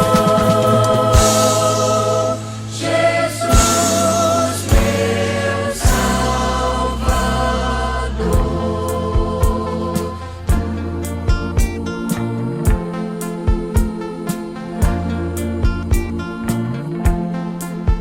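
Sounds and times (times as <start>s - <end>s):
band playing: 0.0s - 11.9s
drum hits: 0.0s - 12.0s, 12.6s - 12.9s, 13.5s - 14.1s
vocal group singing gospel: 0.0s - 18.0s.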